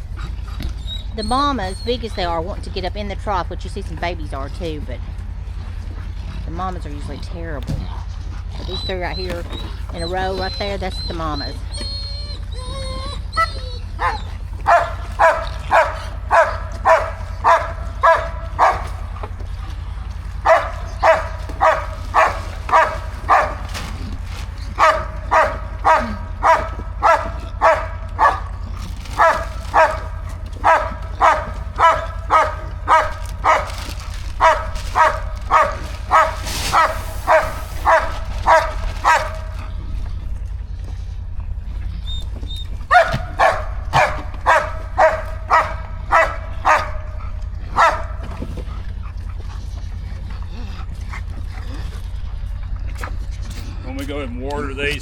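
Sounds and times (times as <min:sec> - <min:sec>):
dog barking: 0:13.4 - 0:39.8, 0:42.8 - 0:48.8.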